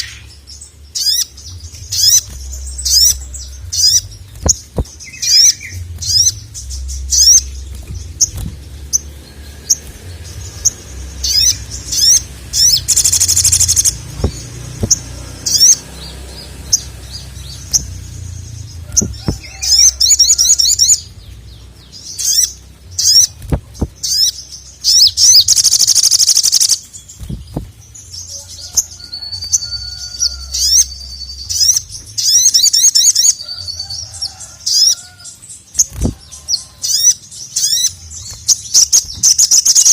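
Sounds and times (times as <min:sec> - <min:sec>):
steady low hum: 0:00.0 - 0:25.9
bird chirps and trills: 0:00.0 - 0:39.9.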